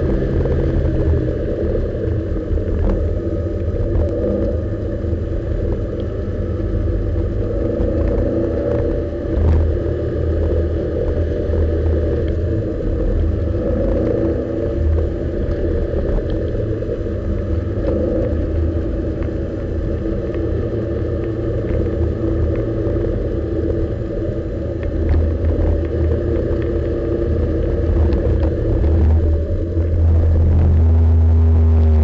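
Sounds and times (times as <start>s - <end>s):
car engine running steadily: 0.0s - 32.0s
road and tyre noise: 0.0s - 32.0s.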